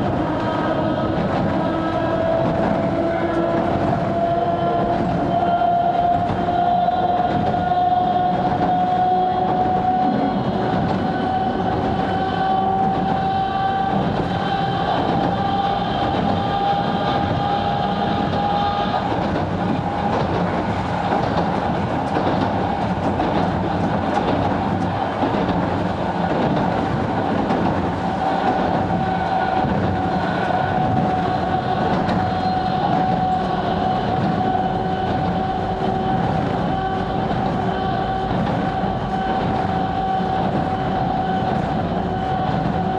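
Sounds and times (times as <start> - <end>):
train wheels rumbling on rails: 0.0 - 42.9.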